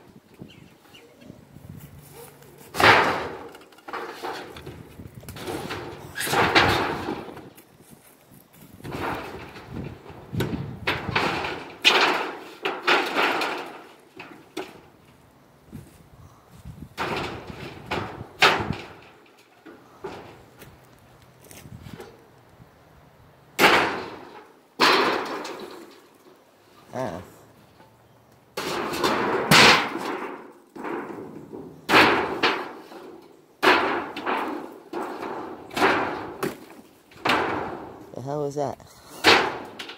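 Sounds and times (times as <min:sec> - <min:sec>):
tin roofing scraping and sliding: 0:00.0 - 0:22.2, 0:23.6 - 0:38.2, 0:38.9 - 0:39.9
sharp knocks: 0:02.7 - 0:07.5, 0:33.6 - 0:38.0
demolition bangs and crashes: 0:02.7 - 0:07.6, 0:08.8 - 0:15.0, 0:16.8 - 0:20.5, 0:23.6 - 0:26.2, 0:28.6 - 0:38.1, 0:39.2 - 0:39.9.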